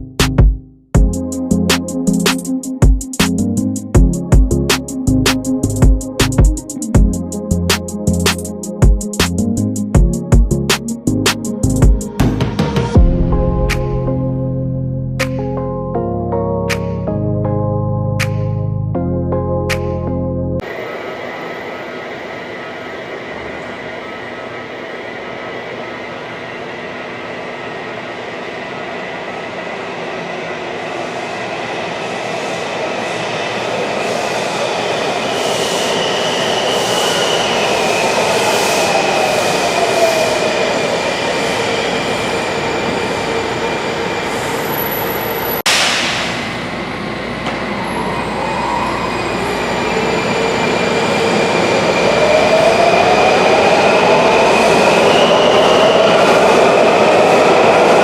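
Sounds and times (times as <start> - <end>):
sharp click: 45.7 - 46.5.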